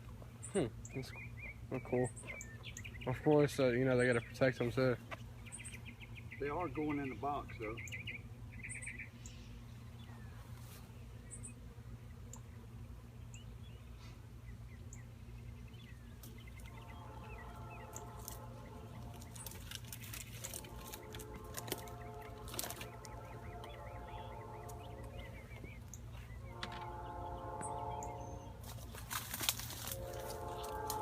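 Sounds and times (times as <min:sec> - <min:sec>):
bird chirps: 0:00.4 - 0:04.4, 0:05.1 - 0:10.3, 0:13.3 - 0:31.0
bees buzzing: 0:09.6 - 0:31.0
bees flying close by: 0:10.4 - 0:31.0.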